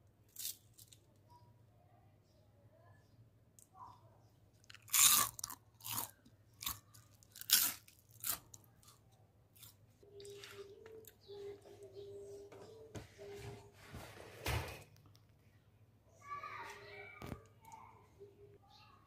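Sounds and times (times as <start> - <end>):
loud chewing crunches: 4.6 - 9.0.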